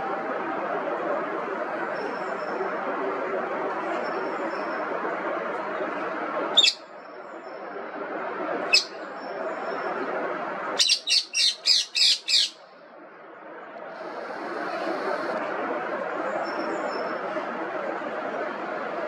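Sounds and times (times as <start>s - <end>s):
parakeet squawking: 6.6s - 6.8s, 8.7s - 9.0s, 10.8s - 12.6s
steady background hiss: 7.2s - 19.0s.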